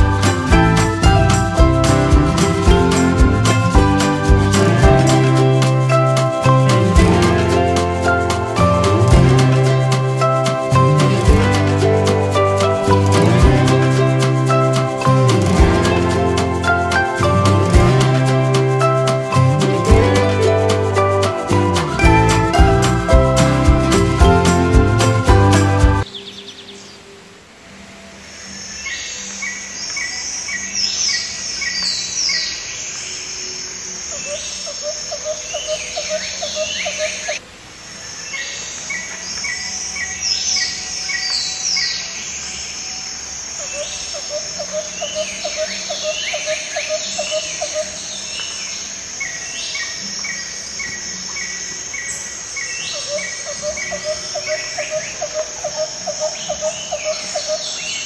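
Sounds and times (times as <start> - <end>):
tropical birdsong: 0.0 - 58.0
insect trills: 26.1 - 58.0
high swooping bird calls: 28.7 - 37.4, 43.2 - 58.0.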